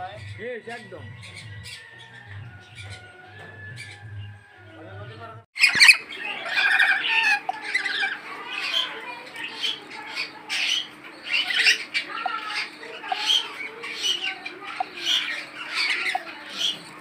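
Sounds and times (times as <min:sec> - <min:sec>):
caged birds squawking and chirping: 0:00.0 - 0:17.0.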